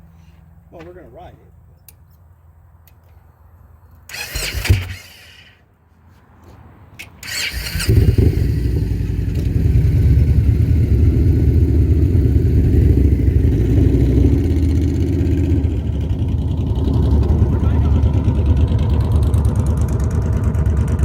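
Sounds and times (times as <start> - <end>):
motorcycle starter cranking: 4.0 - 5.6, 7.0 - 9.1
motorcycle engine idling: 7.9 - 21.0.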